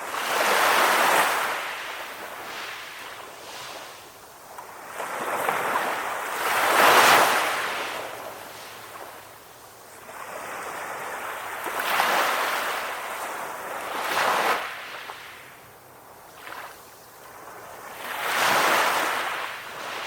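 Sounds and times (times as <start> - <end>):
sea waves breaking: 4.8 - 9.2.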